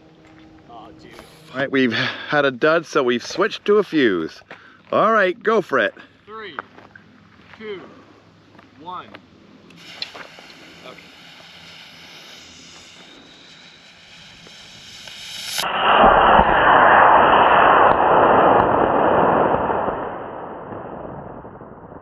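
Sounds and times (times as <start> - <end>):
rocket motor rushing roar: 0.8 - 2.8, 9.6 - 21.2.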